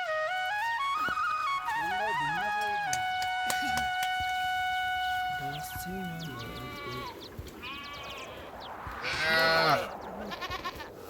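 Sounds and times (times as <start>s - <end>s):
goats or sheep bleating: 5.7s - 11.0s.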